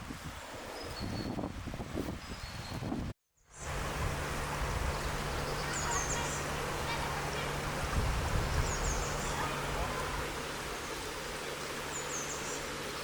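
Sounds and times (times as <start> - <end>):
small birds chirping: 4.8 - 7.8, 8.4 - 13.0.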